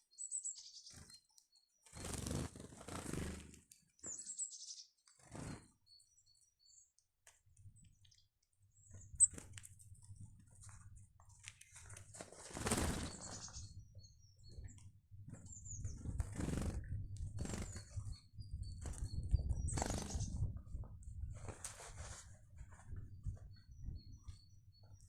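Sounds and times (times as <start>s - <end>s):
birds chirping: 0.0s - 20.8s, 22.8s - 25.0s
bird wingbeats: 1.9s - 4.2s, 5.2s - 5.8s, 11.8s - 13.7s, 15.3s - 24.0s.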